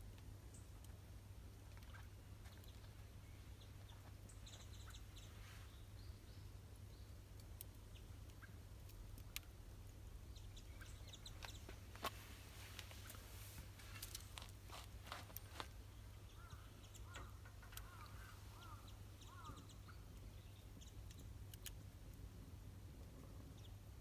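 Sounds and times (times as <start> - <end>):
bird chirping: 1.9 - 7.2, 10.2 - 11.8, 15.4 - 21.6
sharp crackles: 10.7 - 22.3.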